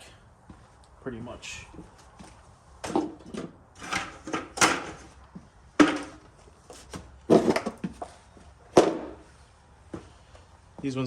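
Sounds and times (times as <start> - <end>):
knocks and clatter of car parts: 2.8 - 5.2, 5.8 - 9.2.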